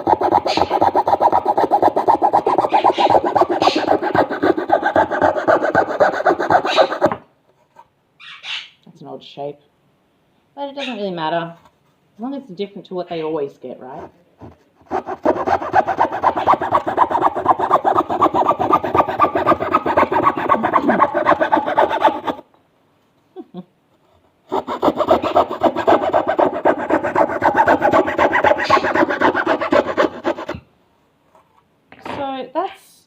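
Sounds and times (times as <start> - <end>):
hand saw cutting wood: 0.0 - 7.2, 14.8 - 22.4, 24.5 - 30.6.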